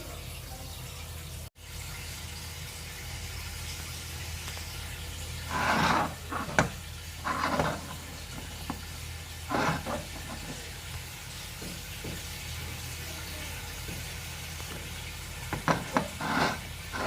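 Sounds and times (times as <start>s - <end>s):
food sizzling: 0.0s - 17.0s
spatula scraping a pan: 5.4s - 10.7s, 15.5s - 17.0s.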